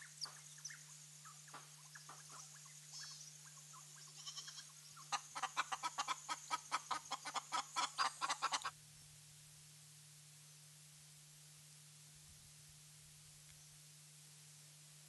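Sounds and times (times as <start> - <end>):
birds calling: 0.0 - 8.7.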